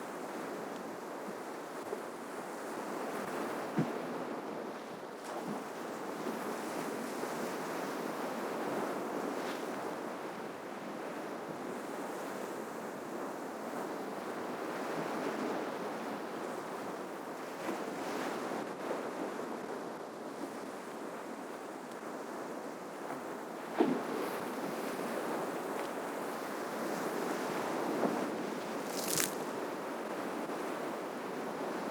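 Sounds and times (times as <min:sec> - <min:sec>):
sea surf washing ashore: 0:24.0 - 0:31.9
small splashes: 0:28.7 - 0:29.5.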